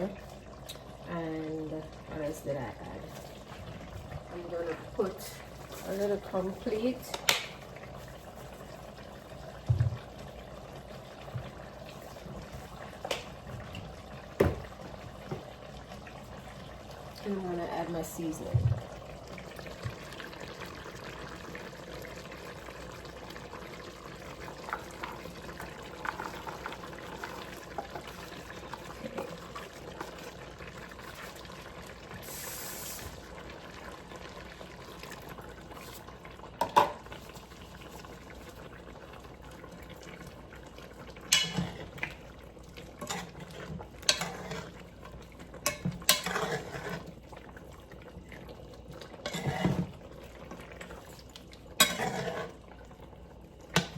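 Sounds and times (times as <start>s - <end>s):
sauce simmering and bubbling: 0.0s - 53.9s.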